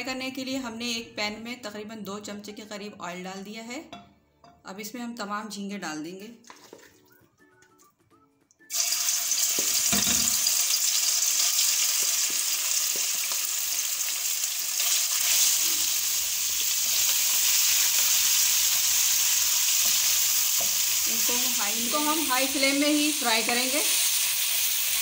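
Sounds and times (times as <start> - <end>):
wooden spatula stirring: 6.4 - 7.1
prawns sizzling in hot oil: 8.7 - 25.0.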